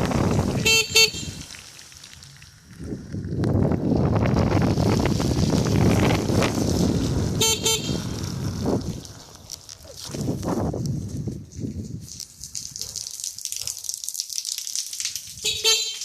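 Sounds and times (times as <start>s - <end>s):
wind rumble on microphone: 0.0s - 13.0s, 15.1s - 15.7s
motorcycle horn toots: 0.5s - 1.5s, 7.4s - 8.2s, 15.4s - 16.0s.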